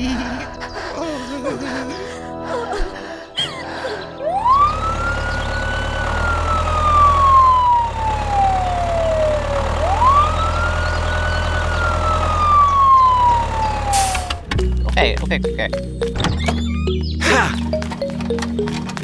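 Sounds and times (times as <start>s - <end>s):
siren wailing: 2.8s - 14.9s.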